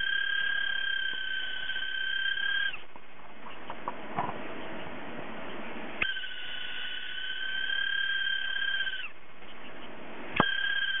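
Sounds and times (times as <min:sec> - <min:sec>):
hard disk motor whine: 0:00.0 - 0:02.9, 0:05.9 - 0:09.2, 0:10.1 - 0:11.0.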